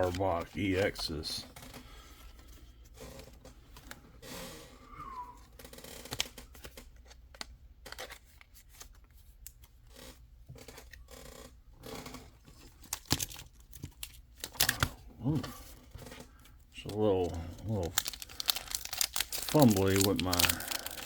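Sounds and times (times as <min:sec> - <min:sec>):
wrapper rustling: 0:16.8 - 0:21.0.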